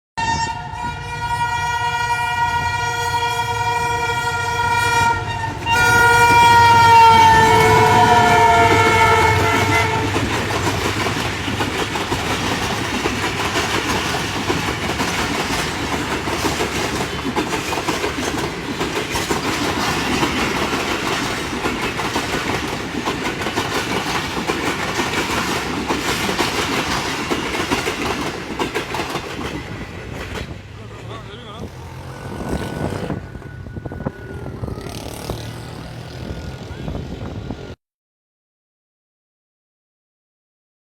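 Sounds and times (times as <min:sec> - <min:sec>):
train horn blast: 0:00.2 - 0:10.3, 0:31.7 - 0:37.0
train wheels clacking on rails: 0:04.6 - 0:36.7.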